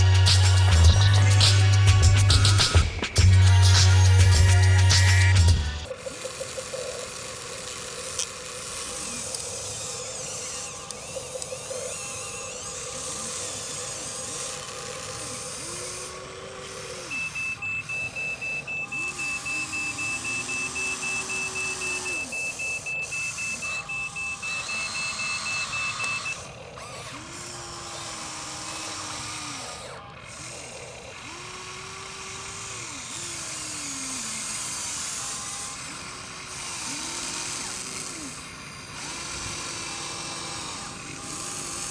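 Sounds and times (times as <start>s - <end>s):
small electric motors whining: 0.0s - 41.9s
high warning beeper: 17.1s - 26.4s.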